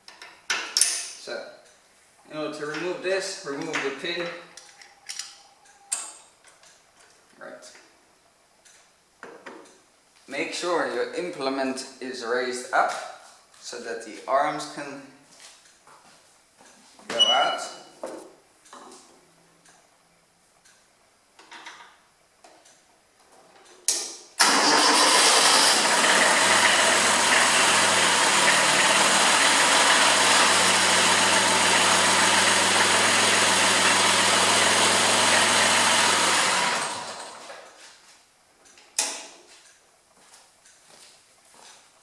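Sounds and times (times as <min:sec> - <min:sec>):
small diesel engine running: 0:24.4 - 0:37.5.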